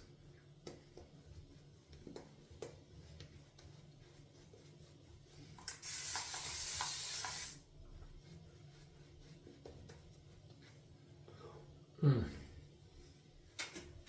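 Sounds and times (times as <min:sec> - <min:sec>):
shaving brush swishing: 0:01.0 - 0:11.0
spray bottle misting: 0:05.6 - 0:07.6.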